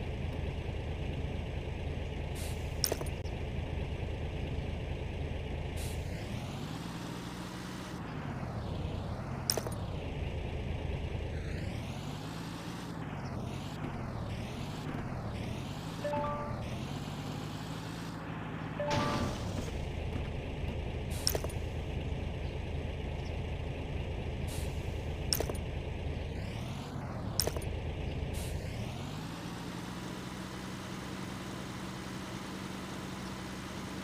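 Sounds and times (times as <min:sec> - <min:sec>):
vehicle engine running: 0:00.0 - 0:34.0
short beeping tone: 0:16.0 - 0:16.8, 0:18.8 - 0:19.6
sharp clicks: 0:25.2 - 0:25.6, 0:27.3 - 0:27.7.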